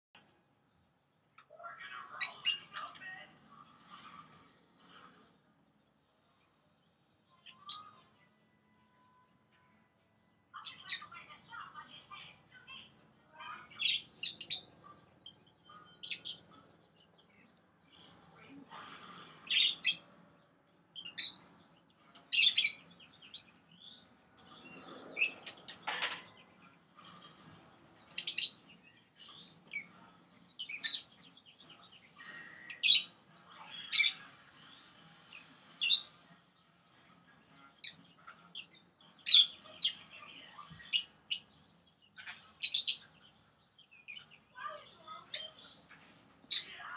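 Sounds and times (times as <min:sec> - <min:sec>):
parrots chattering: 0:01.4 - 0:04.2, 0:10.6 - 0:12.8, 0:13.4 - 0:16.5, 0:18.0 - 0:20.1, 0:21.0 - 0:21.5, 0:22.2 - 0:23.5, 0:24.4 - 0:26.3, 0:27.0 - 0:36.2, 0:36.8 - 0:46.9
parrot chirps: 0:13.8 - 0:15.4, 0:28.1 - 0:28.6.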